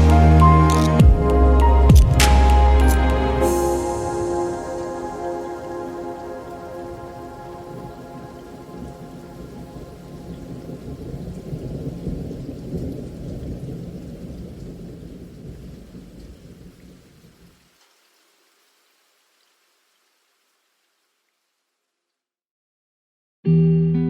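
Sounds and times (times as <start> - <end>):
thunder rumble: 0.0 - 17.5
rain falling: 0.0 - 21.7.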